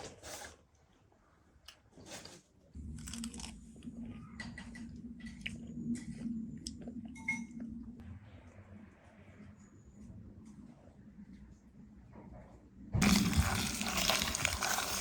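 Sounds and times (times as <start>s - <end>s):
person chewing crunchy food: 13.0s - 15.0s.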